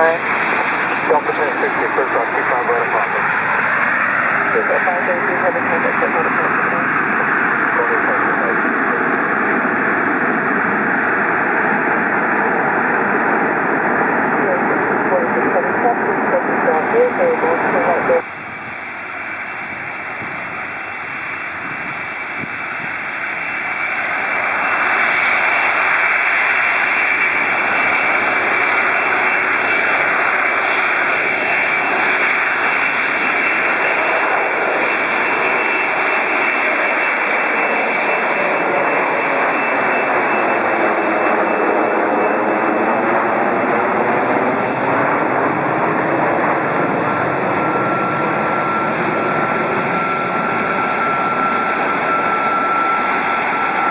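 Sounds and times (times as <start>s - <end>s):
jet engines passing by: 0.0s - 53.9s.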